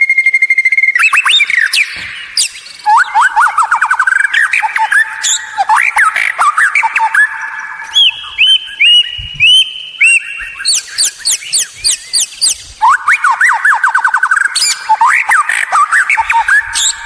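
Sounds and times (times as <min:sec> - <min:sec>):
bird whistled song: 0:00.0 - 0:17.0.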